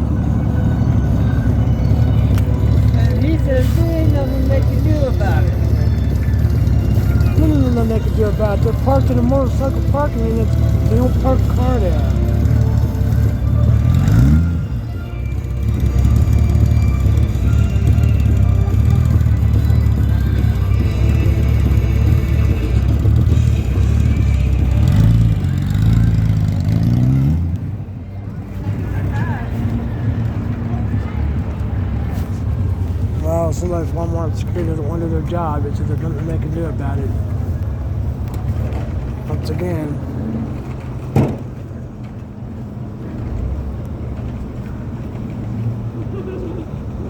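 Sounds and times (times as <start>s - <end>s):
motorcycle engine revving: 0.7s - 27.8s.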